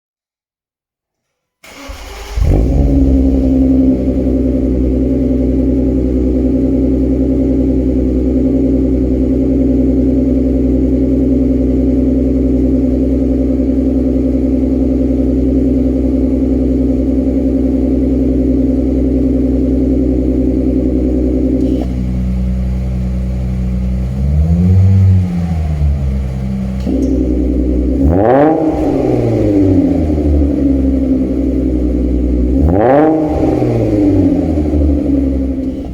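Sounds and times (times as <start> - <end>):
car engine idling and revving: 1.7 - 35.9.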